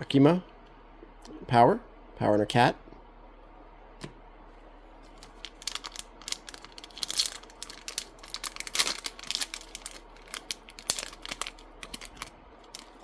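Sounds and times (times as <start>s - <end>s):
foil pack tearing and crinkling: 5.2s - 13.0s.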